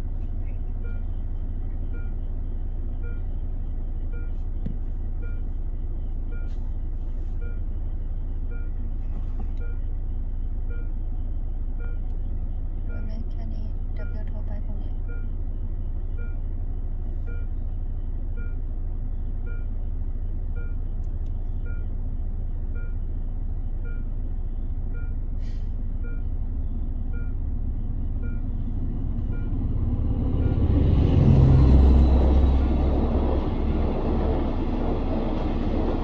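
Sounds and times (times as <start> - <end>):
car engine idling: 0.0 - 36.0
level crossing signal beeping: 0.7 - 16.5, 17.2 - 17.6, 18.2 - 19.8, 23.8 - 29.6
carriages rumbling past: 28.7 - 36.0
passenger train passing: 29.6 - 36.0.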